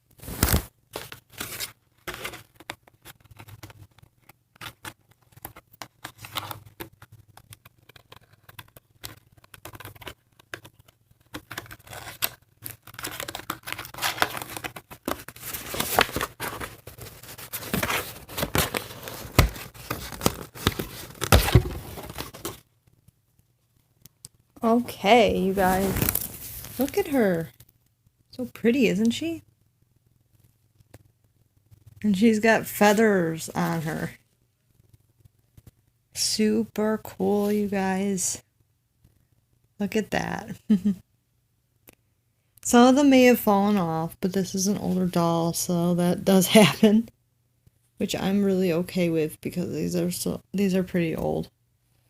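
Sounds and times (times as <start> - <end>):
packaging tearing: 0.2 - 3.7, 7.3 - 22.6, 25.6 - 26.9
packaging rustling and crinkling: 0.2 - 22.6, 25.4 - 27.2.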